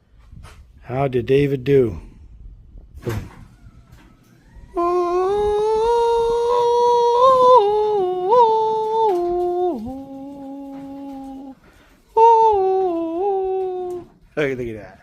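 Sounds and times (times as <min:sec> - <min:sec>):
man humming: 0:04.8 - 0:14.2.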